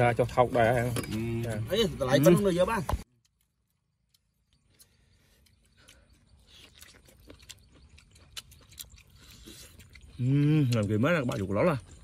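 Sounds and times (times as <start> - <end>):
person chewing meat: 3.1 - 12.0.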